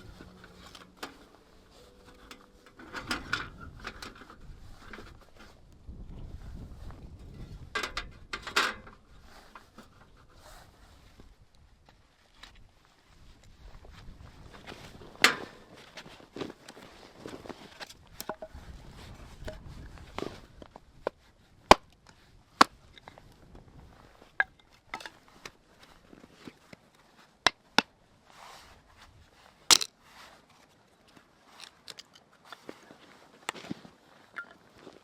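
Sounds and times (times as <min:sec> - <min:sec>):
soft crunching of wood: 0:29.0 - 0:35.0.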